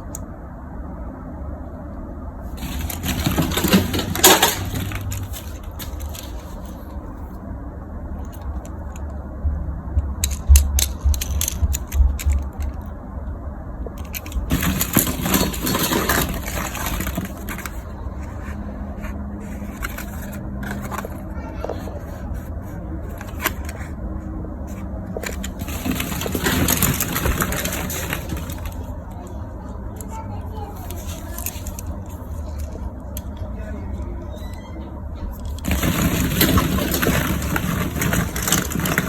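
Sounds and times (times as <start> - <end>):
plastic toys rustling and clattering: 2.4 - 7.4, 8.1 - 9.2, 10.0 - 12.9, 13.8 - 39.0.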